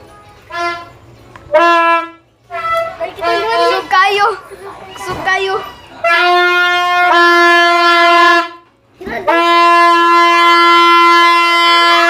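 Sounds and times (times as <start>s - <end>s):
long held horn-like notes: 0.4s - 3.8s, 6.0s - 12.0s.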